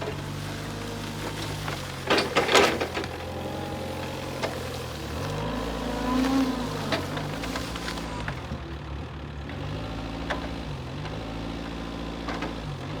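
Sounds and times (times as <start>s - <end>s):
forklift engine running: 0.0s - 13.0s.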